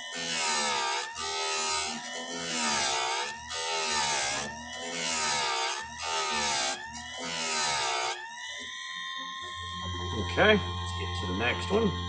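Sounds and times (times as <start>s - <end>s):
chain grinder grinding: 0.0s - 8.6s.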